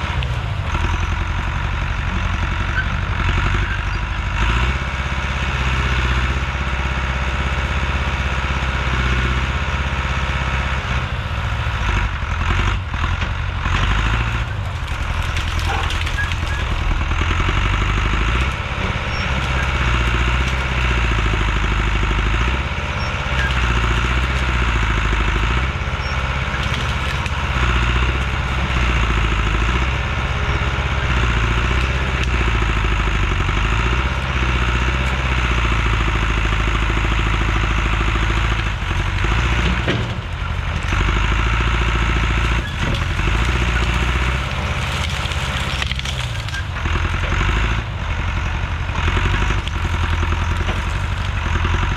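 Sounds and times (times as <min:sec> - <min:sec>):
heavy machinery engine: 0:00.0 - 0:51.9.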